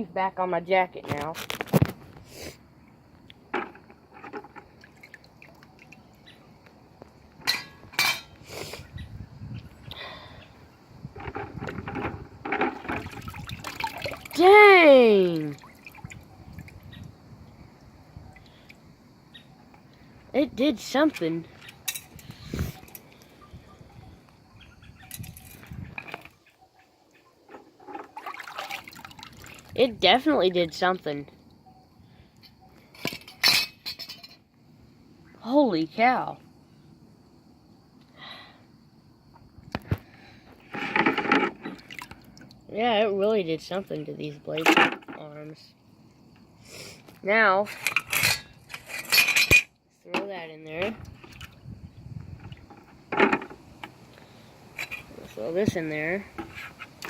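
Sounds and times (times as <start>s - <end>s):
knocks and rustles of fan parts: 3.5s - 4.7s, 52.7s - 54.0s
metal parts clinking and clattering: 47.8s - 49.7s.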